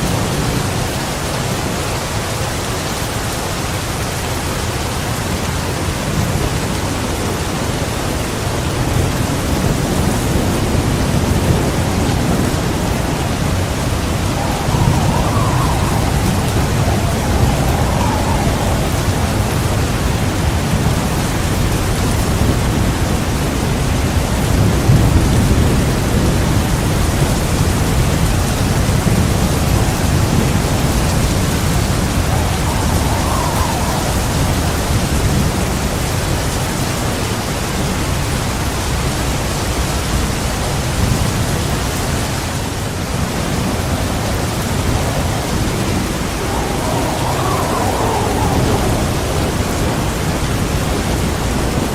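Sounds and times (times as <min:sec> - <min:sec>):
heavy rain: 0:00.0 - 0:51.9
low thunder rumble: 0:06.1 - 0:37.2, 0:43.2 - 0:51.9.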